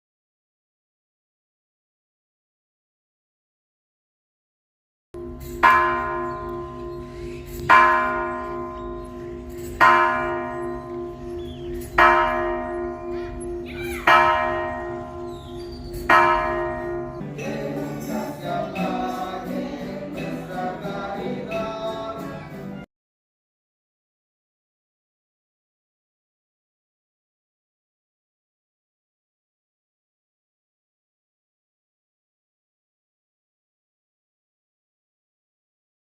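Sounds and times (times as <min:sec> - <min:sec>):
church bell tolling: 0:05.2 - 0:18.8
quick bell ringing: 0:05.2 - 0:18.9.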